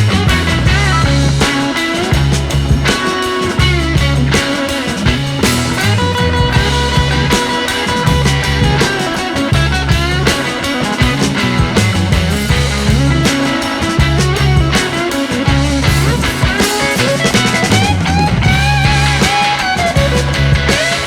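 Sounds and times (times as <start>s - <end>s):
background music with beat and bass: 0.0s - 21.0s.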